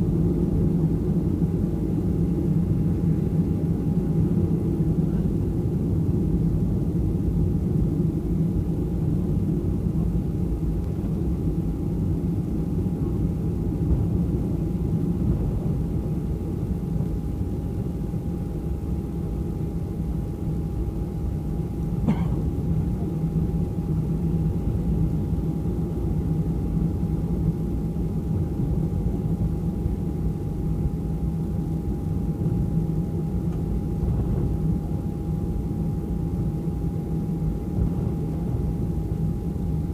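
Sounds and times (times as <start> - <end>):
jet engines idling rumble: 0.0 - 39.9
thin steady whine: 0.0 - 39.9.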